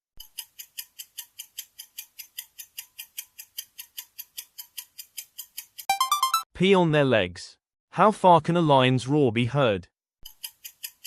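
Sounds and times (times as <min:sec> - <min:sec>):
ticking clock: 0:00.2 - 0:06.1, 0:10.3 - 0:11.0.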